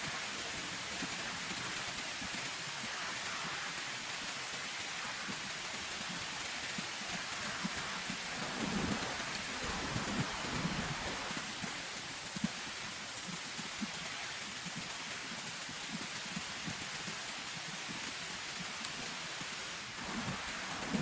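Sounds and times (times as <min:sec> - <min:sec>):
heavy rain hissing: 0:00.0 - 0:13.2, 0:17.8 - 0:21.0.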